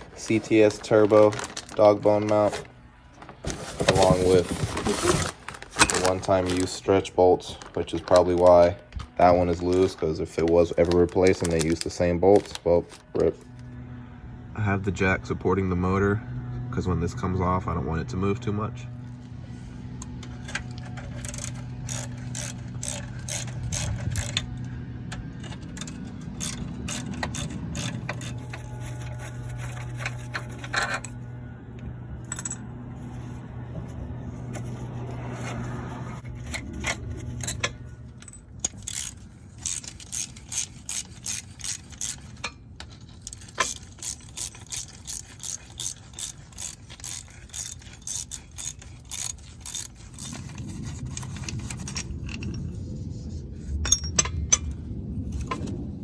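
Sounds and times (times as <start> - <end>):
steady low hum: 0.0 - 56.0
metal tool clicks and scraping: 19.2 - 31.2, 34.5 - 55.8
hand ratchet clicking: 20.0 - 24.7, 25.4 - 31.1, 38.2 - 52.4.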